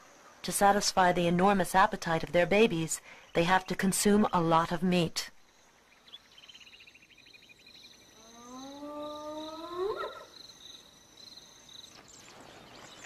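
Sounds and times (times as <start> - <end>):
insects chirring: 0.0 - 13.0
hyena whoop: 8.2 - 10.3.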